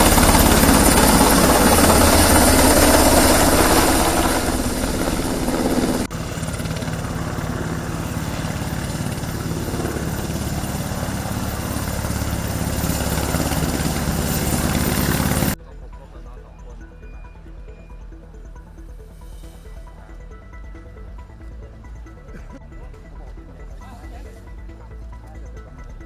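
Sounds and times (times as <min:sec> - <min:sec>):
helicopter rotor and engine: 0:00.0 - 0:18.9.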